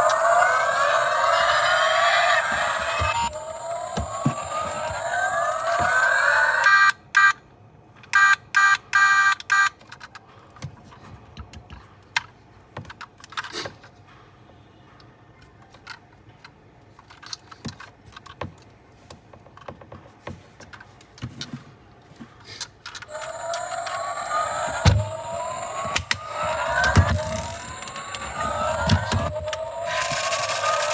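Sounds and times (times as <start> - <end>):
electronic rising pitch sweeps: 23.1 - 30.9.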